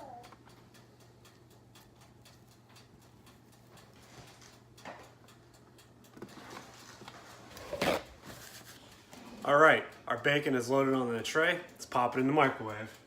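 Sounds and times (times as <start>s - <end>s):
faint ticking: 0.0s - 6.2s, 8.9s - 13.0s.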